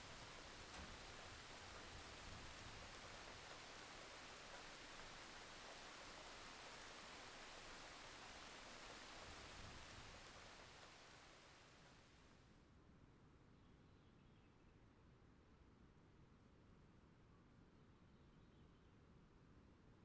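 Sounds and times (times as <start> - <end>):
faint steady rain: 0.0 - 12.7.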